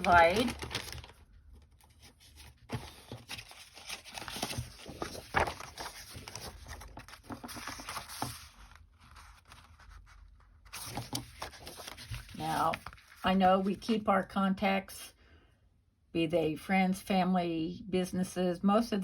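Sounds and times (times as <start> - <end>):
paper rustling and crinkling: 0.0 - 13.9.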